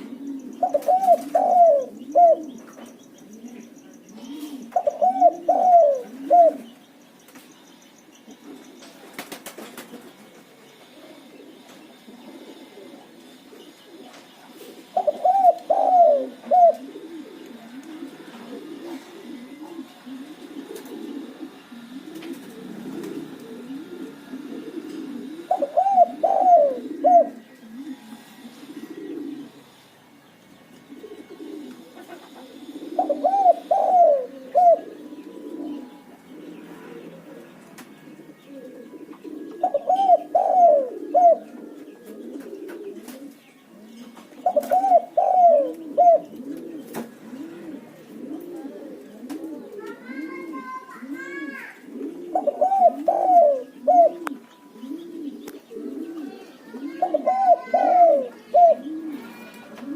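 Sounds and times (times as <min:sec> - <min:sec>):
dove cooing phrases: 0:00.0 - 0:07.0, 0:08.1 - 0:59.9
lower cooing of other doves: 0:00.0 - 0:59.9.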